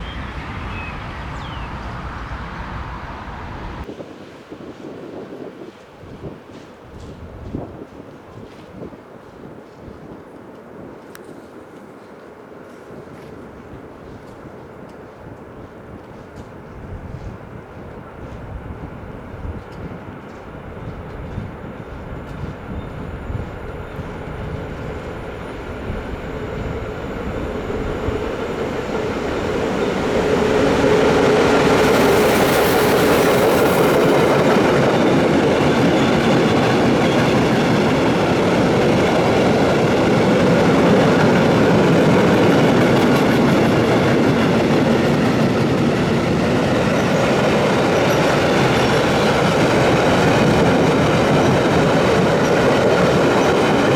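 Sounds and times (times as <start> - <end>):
freight train rumbling: 0.0 - 4.0, 12.8 - 53.9
wheels clacking on rail joints: 19.4 - 53.9.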